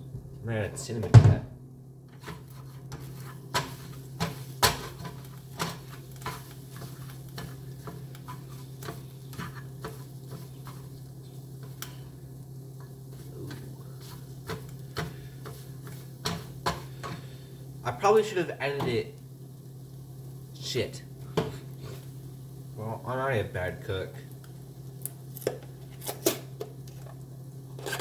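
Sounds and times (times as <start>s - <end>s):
steady low hum: 0.0s - 27.9s
faint sizzle: 0.0s - 28.0s
utensil scraping frying pan: 2.1s - 12.2s, 13.0s - 17.6s, 27.7s - 28.0s.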